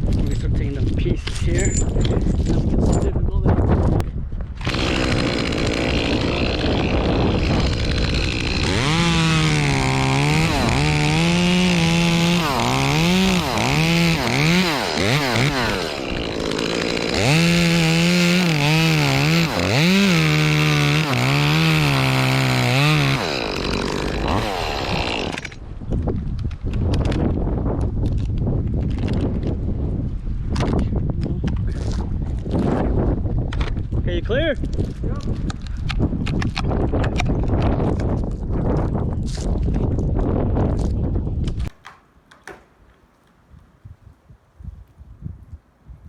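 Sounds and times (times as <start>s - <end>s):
chainsaw cutting wood: 4.6s - 25.6s, 41.5s - 43.6s.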